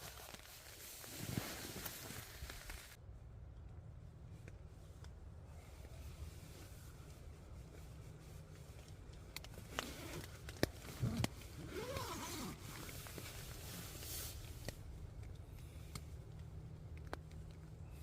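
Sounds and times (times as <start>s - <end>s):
steady low background noise: 0.0s - 18.0s
rasping zip-like sound: 10.8s - 14.4s.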